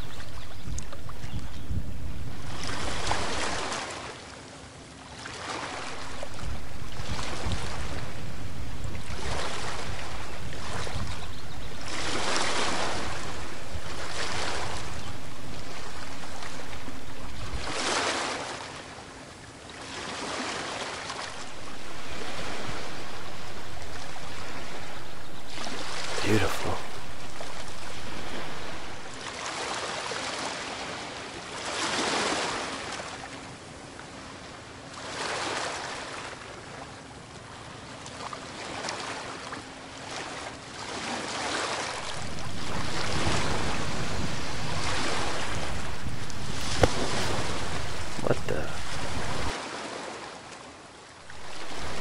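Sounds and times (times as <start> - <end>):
ocean surf washing on beach: 0.0 - 4.3, 5.3 - 18.8, 20.2 - 33.0, 41.8 - 50.3, 51.2 - 52.0.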